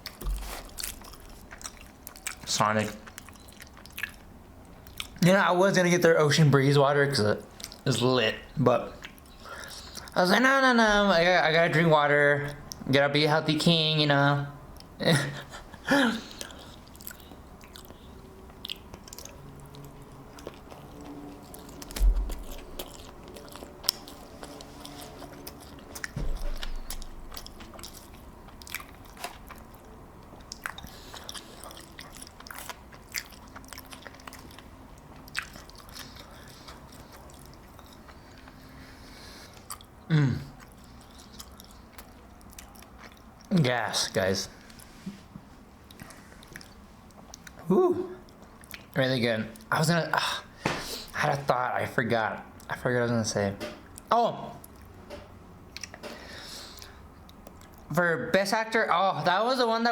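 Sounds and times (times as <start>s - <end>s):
man chewing food: 0.0s - 5.2s, 7.4s - 7.9s, 8.8s - 10.2s, 12.4s - 12.9s, 14.6s - 43.5s, 44.5s - 49.0s, 53.8s - 57.9s.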